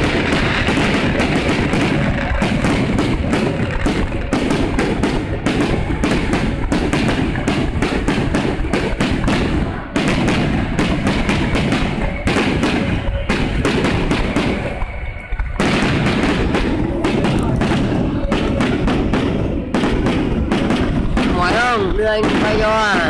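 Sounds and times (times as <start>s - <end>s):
fireworks booming: 0.0s - 23.0s.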